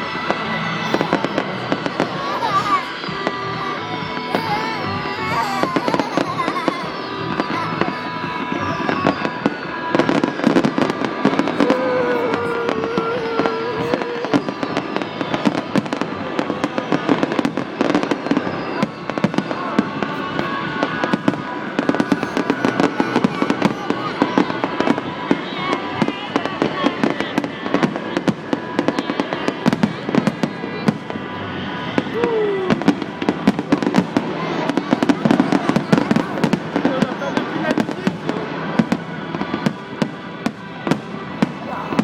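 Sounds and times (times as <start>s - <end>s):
loud music: 0.0s - 25.8s
fireworks bangs and crackles: 0.0s - 42.0s.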